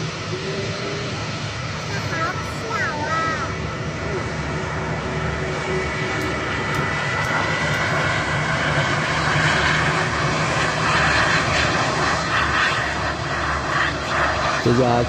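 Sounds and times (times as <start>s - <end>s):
jet engines taxiing: 0.0s - 15.0s.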